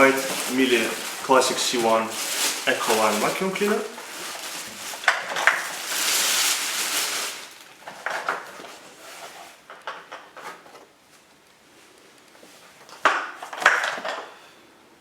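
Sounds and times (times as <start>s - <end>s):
packaging rustling: 0.0s - 11.3s.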